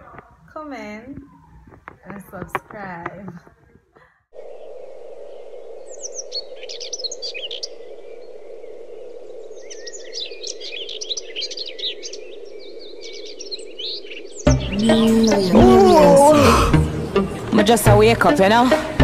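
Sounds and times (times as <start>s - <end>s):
small birds twittering: 6.0s - 8.3s, 9.5s - 16.6s.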